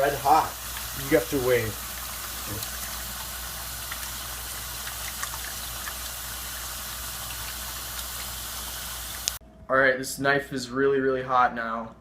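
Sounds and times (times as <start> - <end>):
water heating hiss: 0.0 - 9.4.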